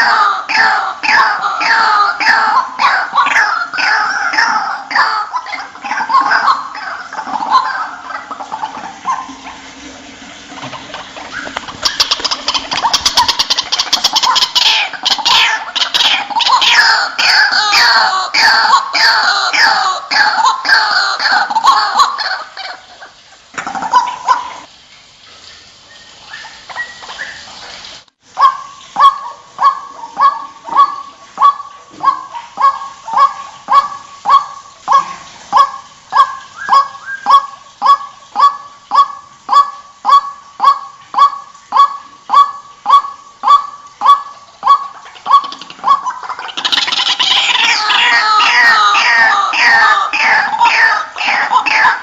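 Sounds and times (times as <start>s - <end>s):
waterhen croaking calls: 0.0s - 24.8s, 25.4s - 52.0s.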